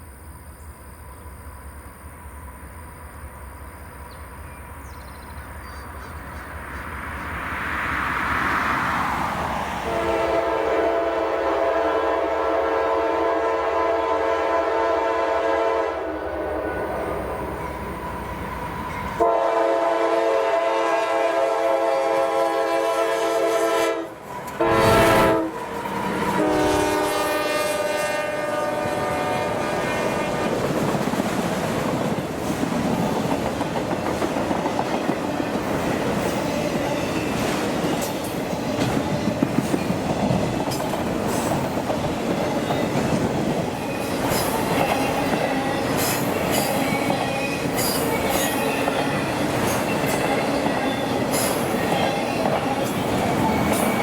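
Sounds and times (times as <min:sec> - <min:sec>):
freight train rumbling past: 0:00.0 - 0:54.0
locomotive horn blasts: 0:09.9 - 0:30.6
wheels clicking over rail joints: 0:30.4 - 0:54.0.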